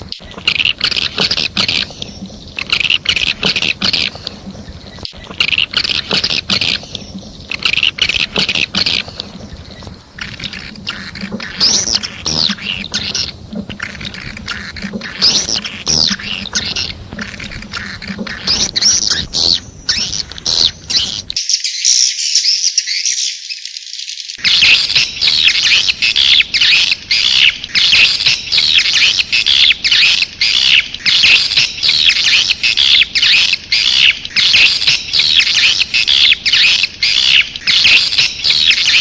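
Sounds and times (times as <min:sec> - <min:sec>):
rapid sharp clicks: 0:00.0 - 0:21.4
birds twittering and chirping: 0:00.0 - 0:39.0.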